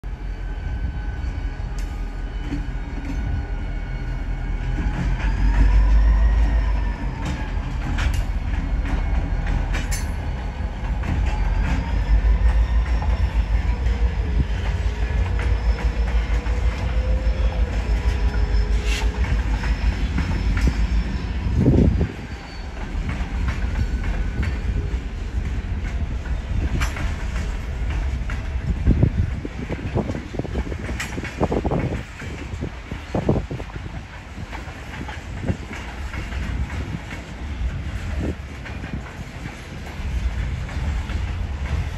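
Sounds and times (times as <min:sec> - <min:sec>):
diesel locomotives rumbling: 0:00.0 - 0:41.9
wheel squeal: 0:01.2 - 0:25.0
wheels clattering over rail joints: 0:04.7 - 0:41.9.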